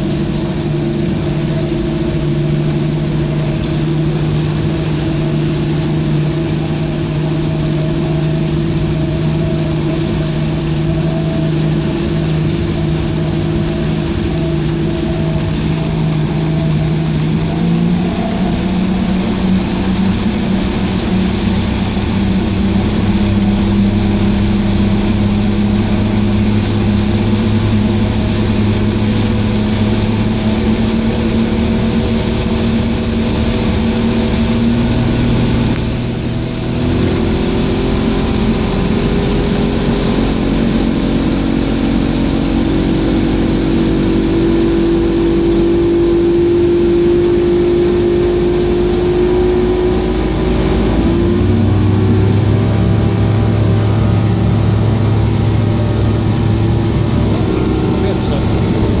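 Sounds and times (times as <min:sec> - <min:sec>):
outboard engine running: 0:00.0 - 0:59.0.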